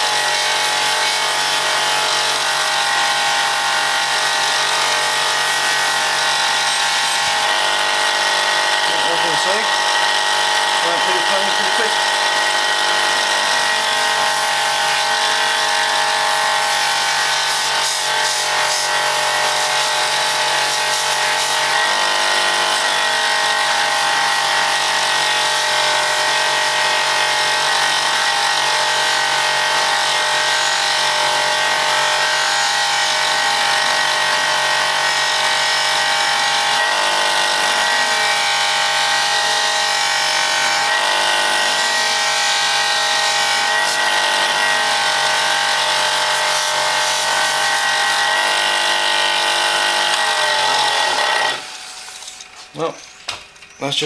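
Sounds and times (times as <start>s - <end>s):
buffing machine motor whine: 0.0s - 53.8s
hiss of metal on buffing wheel: 19.5s - 21.6s.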